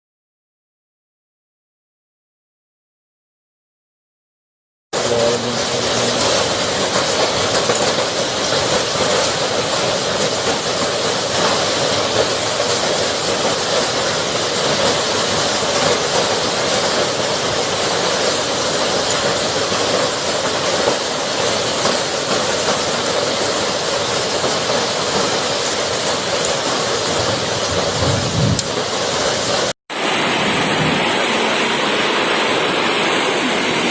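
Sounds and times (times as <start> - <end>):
hail and heavy rain falling: 5.1 - 33.9
strong wind: 27.0 - 33.9.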